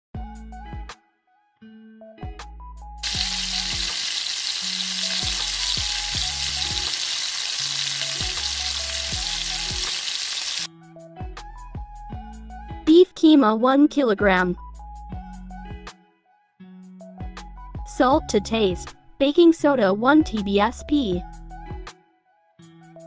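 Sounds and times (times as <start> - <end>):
kebabs sizzling in oil: 3.0 - 10.7.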